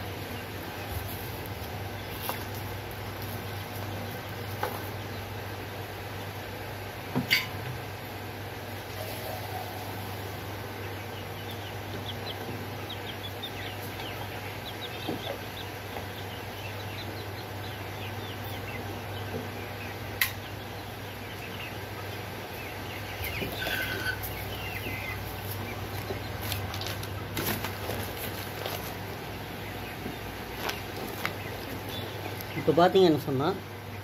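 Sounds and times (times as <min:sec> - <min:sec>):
birds chirping: 0:00.0 - 0:34.0
steady low hum: 0:00.0 - 0:34.0.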